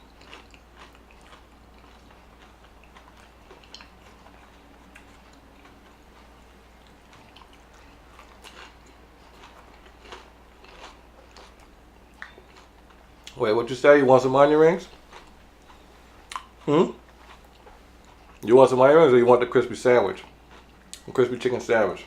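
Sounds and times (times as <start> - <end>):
person chewing food: 0.0 - 13.4, 14.8 - 18.5, 20.2 - 21.1
mouth clicks and smacks: 16.3 - 16.6.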